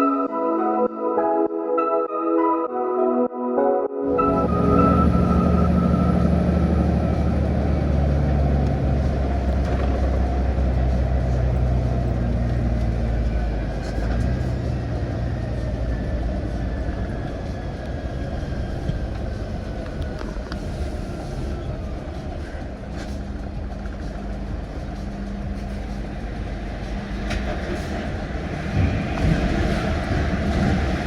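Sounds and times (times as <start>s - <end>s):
faint high descending tone: 1.8s - 7.6s
vehicle rumbling in motion: 4.1s - 31.0s.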